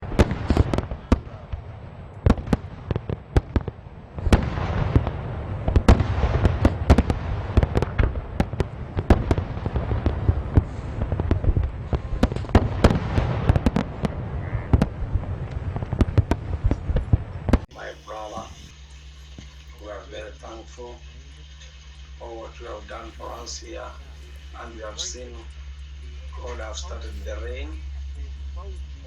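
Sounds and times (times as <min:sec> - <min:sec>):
rain falling: 0:17.7 - 0:29.0.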